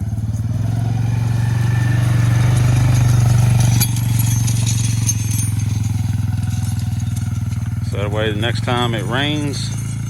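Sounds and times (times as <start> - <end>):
vehicle engine under load: 0.0 - 10.0
light clattering: 2.0 - 8.1.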